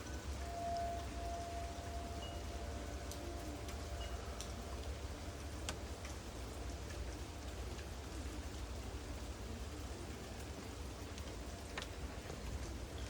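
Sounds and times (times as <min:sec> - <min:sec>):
steady rain falling: 0:00.0 - 0:13.0
single raindrop ticks: 0:04.4 - 0:06.2, 0:10.4 - 0:13.0.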